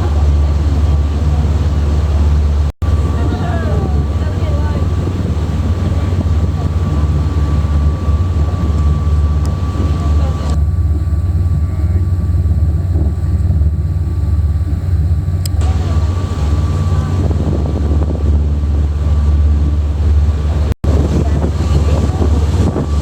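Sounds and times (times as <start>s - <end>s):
boat engine droning: 0.0s - 23.0s
wind noise on microphone: 0.0s - 23.0s
click: 15.4s - 15.6s.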